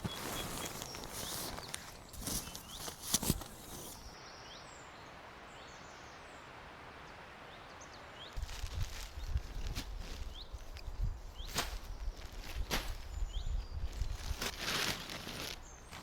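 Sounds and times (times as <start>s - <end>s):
crunching footsteps: 0.0s - 4.1s, 8.4s - 16.0s
forest ambience hiss: 0.0s - 16.0s.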